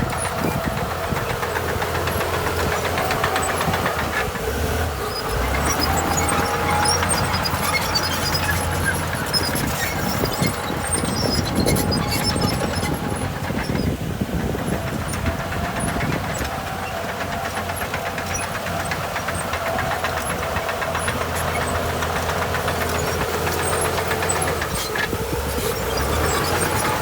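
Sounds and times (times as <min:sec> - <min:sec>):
heavy diesel engine running: 0:00.0 - 0:27.0.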